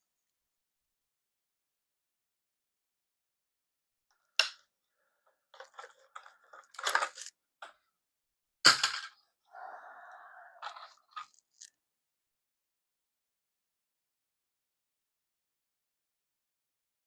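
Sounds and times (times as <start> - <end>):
clicks and crackles of hard objects: 5.6 - 7.8.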